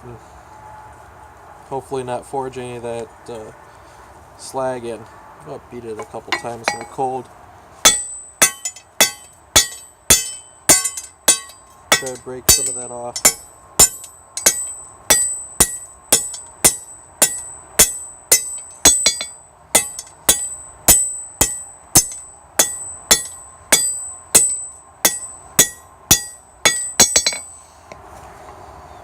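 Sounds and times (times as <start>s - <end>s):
hammer striking metal on anvil: 6.0s - 7.0s, 7.8s - 27.6s.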